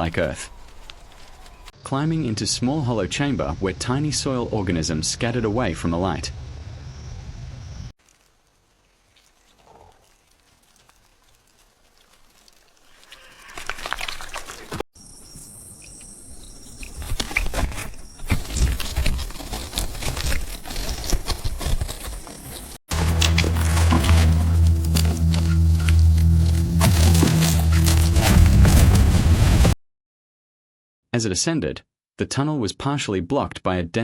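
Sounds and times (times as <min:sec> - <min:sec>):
soil crackling and scraping: 0:08.0 - 0:29.7.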